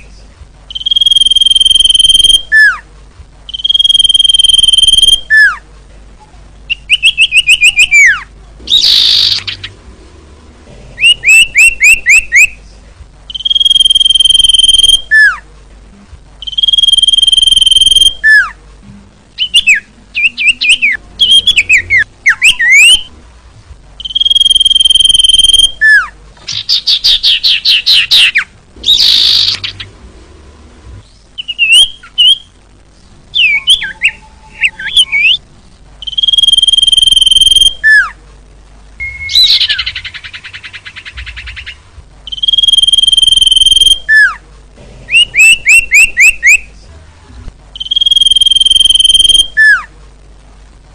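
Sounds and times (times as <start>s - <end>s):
bird chirping notes: 0.0s - 2.8s, 3.5s - 5.6s, 6.2s - 15.4s, 16.4s - 18.6s, 19.3s - 23.2s, 24.0s - 38.2s, 39.0s - 44.4s, 47.8s - 49.9s
bird long whistles: 39.0s - 41.7s.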